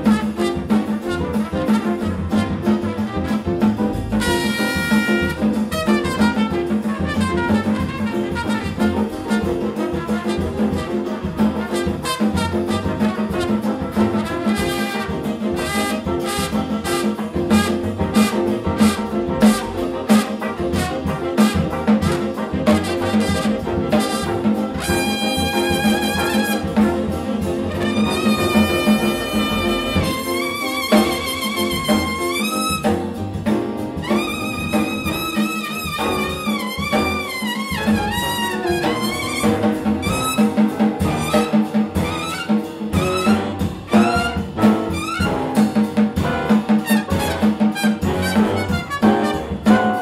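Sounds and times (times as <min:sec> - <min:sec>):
trumpet solo: 0:00.0 - 0:33.2, 0:34.0 - 0:50.0
big band jazz: 0:00.0 - 0:50.0
trumpet long high note: 0:24.2 - 0:26.7, 0:27.8 - 0:32.8.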